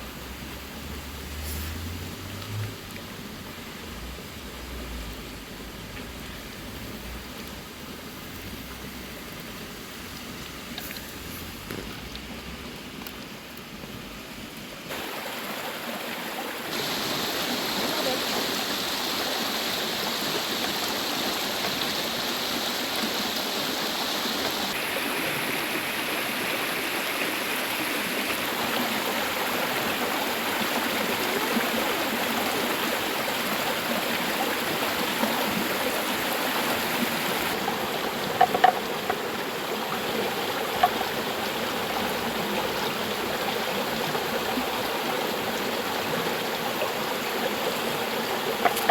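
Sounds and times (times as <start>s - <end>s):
river water rushing: 0.0s - 5.8s, 14.8s - 48.9s.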